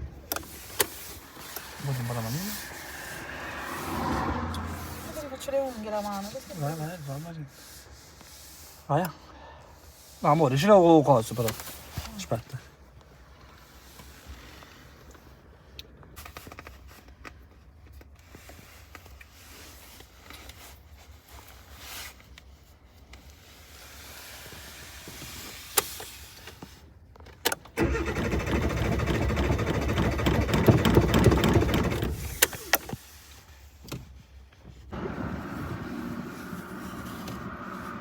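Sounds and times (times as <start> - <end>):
car engine cranking: 0.2 - 5.4, 27.5 - 33.0, 34.9 - 38.0.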